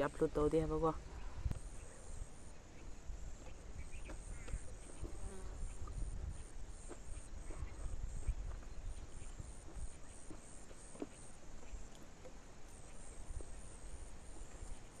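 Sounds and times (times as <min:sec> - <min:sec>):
low wind rumble: 0:00.0 - 0:10.2
insects buzzing: 0:00.8 - 0:15.0.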